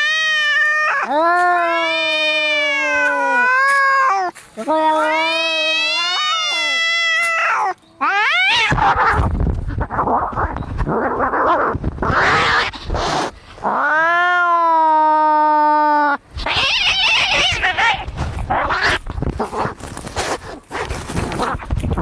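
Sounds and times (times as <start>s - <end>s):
cat yowling: 0.0s - 9.3s, 13.7s - 19.0s
cats hissing and screeching: 0.0s - 22.0s.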